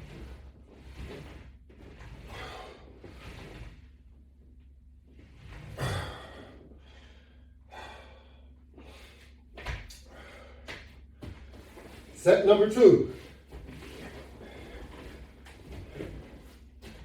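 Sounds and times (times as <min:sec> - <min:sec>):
man exhaling hard: 0:05.8 - 0:09.2.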